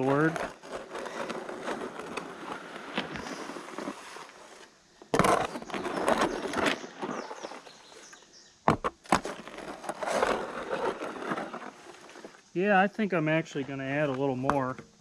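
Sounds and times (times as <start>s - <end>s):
shovel scraping wet concrete: 0.0s - 8.1s, 9.1s - 12.4s.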